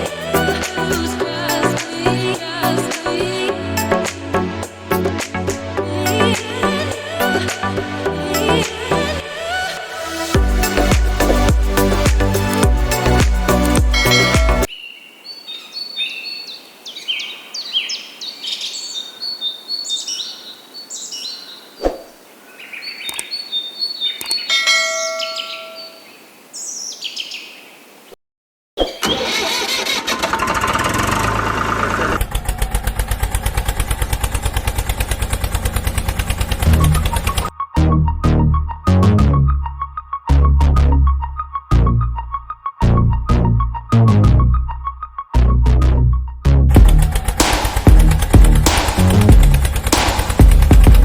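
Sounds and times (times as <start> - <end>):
birds chirping: 10.7 - 28.0.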